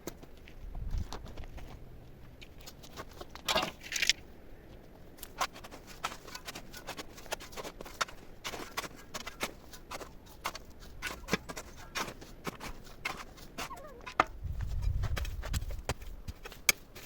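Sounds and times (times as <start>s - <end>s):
sticks and stones knocking: 5.2s - 17.0s.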